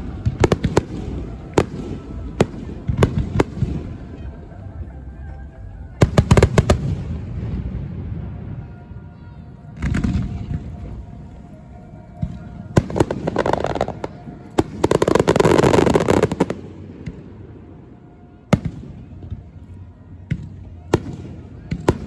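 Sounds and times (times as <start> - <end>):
fireworks crackling pops: 0.0 - 5.0, 9.8 - 17.3, 18.6 - 22.0
fireworks low boom: 0.0 - 22.0.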